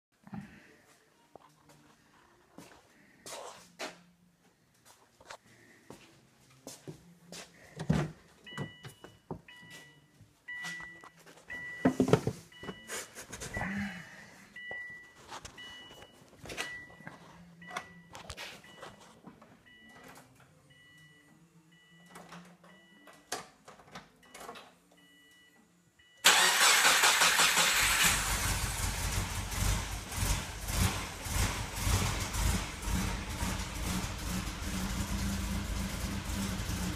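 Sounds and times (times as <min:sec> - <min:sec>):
car engine running loud: 0:28.1 - 0:36.9.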